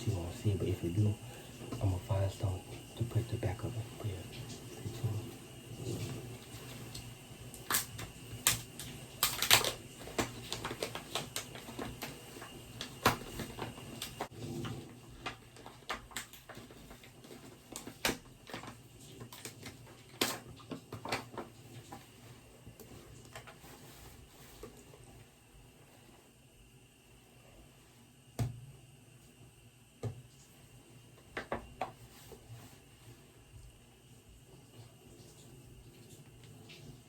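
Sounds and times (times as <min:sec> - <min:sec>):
small objects clicking and knocking: 0:07.6 - 0:12.2.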